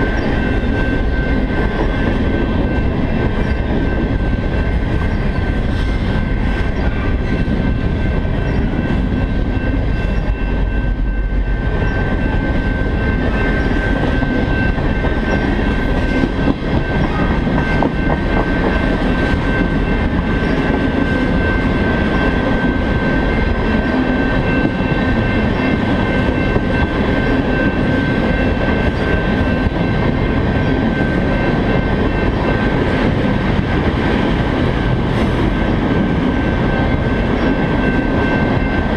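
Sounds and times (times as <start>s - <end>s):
freight train wheels rumbling: 0.0s - 38.9s
high-pitched ringing of rails: 0.0s - 38.9s.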